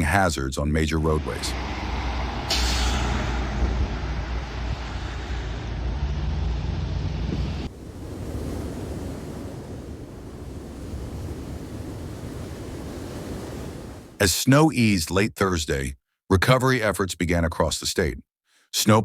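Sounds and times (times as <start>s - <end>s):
heavy low rumble: 0.9s - 7.9s
wind noise on microphone: 2.2s - 14.2s.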